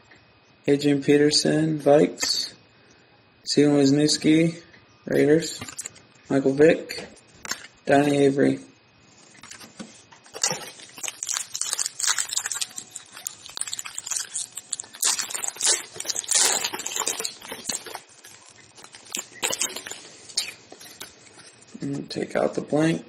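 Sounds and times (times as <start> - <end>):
card pack wrapper crinkling and tearing: 9.4 - 21.4.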